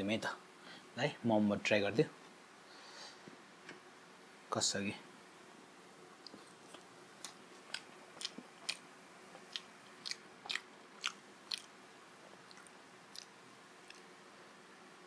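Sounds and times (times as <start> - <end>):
chewing with mouth clicks and smacks: 6.2 - 14.1.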